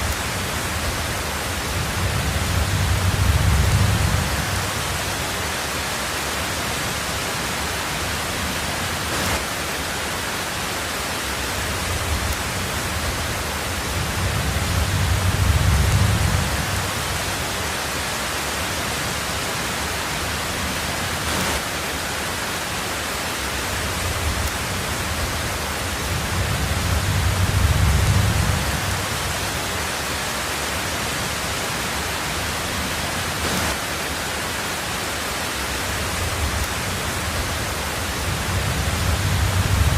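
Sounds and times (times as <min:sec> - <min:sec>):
low rumble of thunder: 0:00.0 - 0:05.4, 0:11.7 - 0:17.6, 0:23.8 - 0:29.8, 0:36.0 - 0:39.9
heavy rain on a tin roof: 0:00.0 - 0:39.9.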